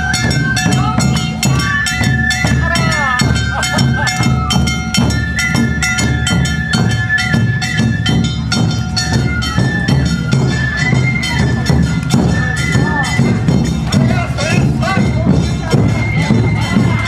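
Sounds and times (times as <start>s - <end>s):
drums beating fast rhythm: 0.0s - 17.0s
flutes playing high melody: 0.0s - 17.0s.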